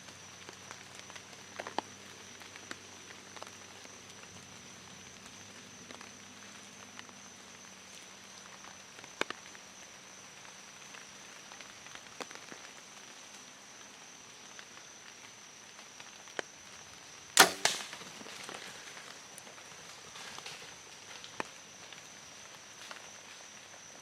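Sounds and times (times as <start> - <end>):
arrow hitting with a smack: 17.4 - 18.7
bow firing snap: 17.4 - 19.0.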